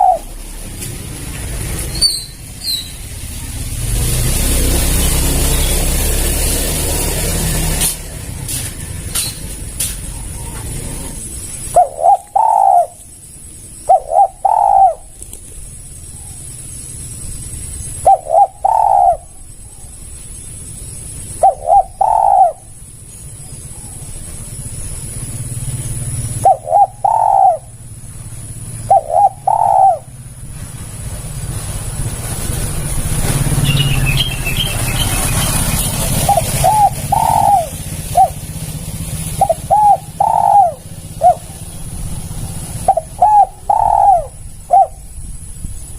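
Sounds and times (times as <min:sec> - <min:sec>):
small bird chirping: 0:00.0 - 0:00.5, 0:01.5 - 0:03.7, 0:08.3 - 0:30.5, 0:33.3 - 0:45.9
dove cooing: 0:00.0 - 0:00.8, 0:10.0 - 0:16.5, 0:17.9 - 0:19.9, 0:21.2 - 0:24.7, 0:25.6 - 0:30.4, 0:35.0 - 0:45.3.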